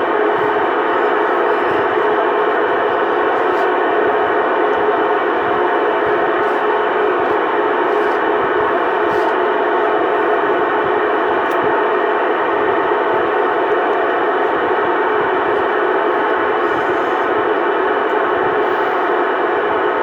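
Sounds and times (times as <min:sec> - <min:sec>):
radio hiss and hum: 0:13.3 - 0:17.5.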